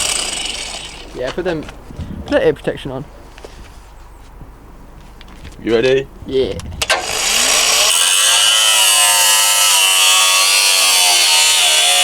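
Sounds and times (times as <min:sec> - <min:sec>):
power tool cutting metal: 0:00.0 - 0:01.1, 0:06.8 - 0:12.0.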